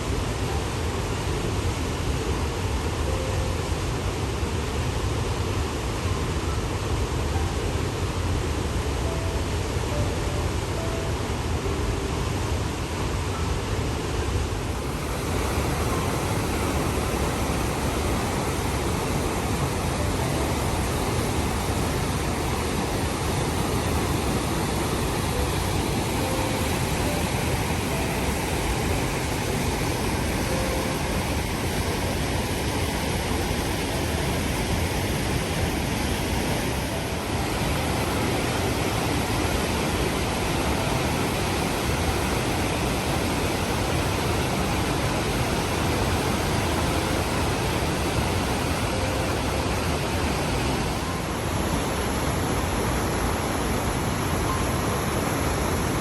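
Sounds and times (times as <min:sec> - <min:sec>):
waterfall rushing: 0:13.8 - 0:56.0.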